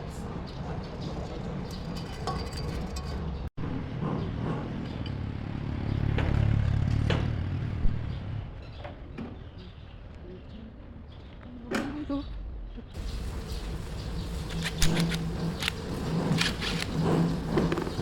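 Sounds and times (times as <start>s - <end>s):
machinery rumbling: 13.0s - 18.0s.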